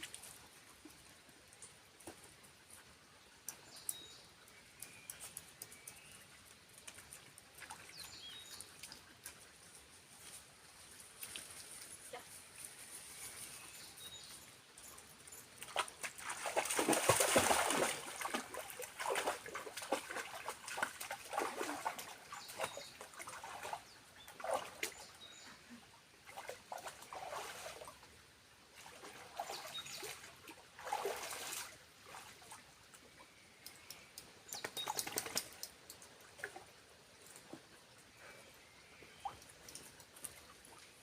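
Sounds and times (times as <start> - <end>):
splashing and rustling: 15.6 - 25.4, 26.3 - 28.0, 28.8 - 32.7, 34.5 - 37.8.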